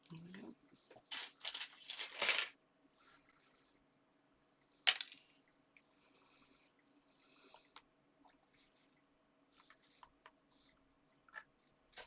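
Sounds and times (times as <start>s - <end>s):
paper and card rustling: 1.0s - 2.5s.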